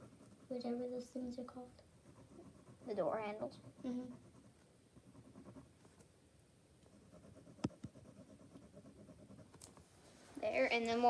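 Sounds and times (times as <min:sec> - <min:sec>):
pen scratching on paper: 0:00.0 - 0:06.0, 0:06.8 - 0:09.6.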